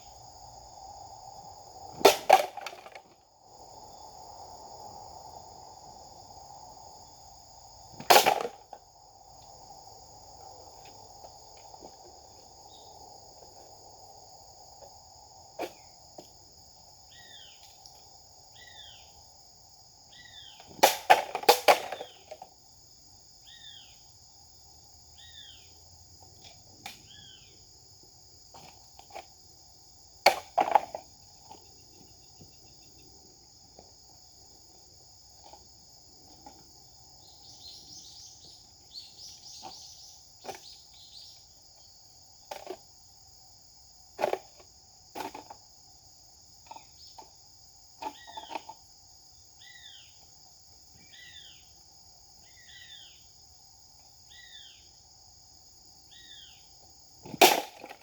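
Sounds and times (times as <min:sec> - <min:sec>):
insect chorus: 0:00.0 - 0:58.0
bird chirping: 0:17.1 - 0:17.6, 0:18.5 - 0:19.2, 0:20.1 - 0:20.7, 0:23.4 - 0:24.1, 0:25.2 - 0:25.8, 0:27.0 - 0:27.6, 0:37.2 - 0:41.5, 0:51.0 - 0:51.7, 0:52.4 - 0:53.3.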